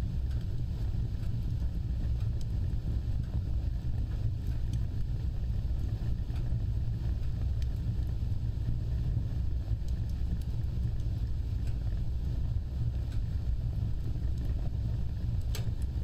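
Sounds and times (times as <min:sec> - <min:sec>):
faint fire crackles: 0:00.0 - 0:16.0
fire burning: 0:00.0 - 0:16.0.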